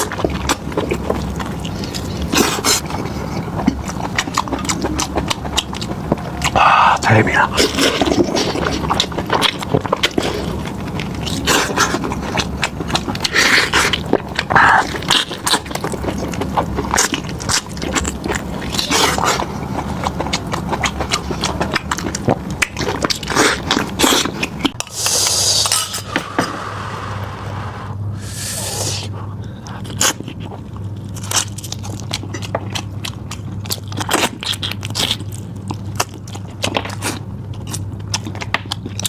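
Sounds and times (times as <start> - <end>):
chewing and tearing meat: 0.0 - 25.8, 29.2 - 39.0
steady low hum: 0.0 - 39.0.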